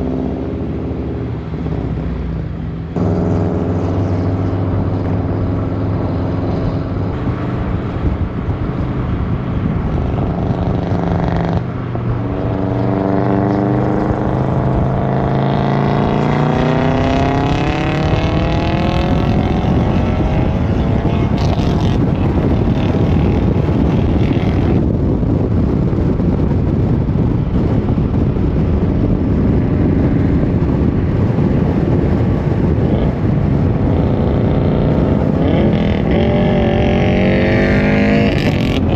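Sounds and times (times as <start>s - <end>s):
car engine accelerating: 0.0s - 25.4s, 27.5s - 38.9s
steady even rush: 27.8s - 38.9s.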